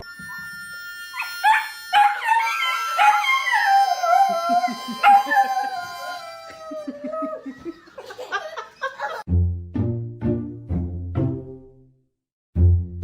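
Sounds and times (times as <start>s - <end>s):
dog yipping and howling: 1.2s - 7.8s.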